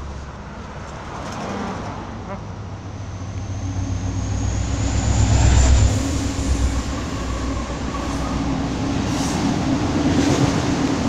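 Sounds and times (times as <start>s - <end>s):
diesel locomotive engine rumble: 0.0s - 11.0s
thin high whine: 3.0s - 8.8s.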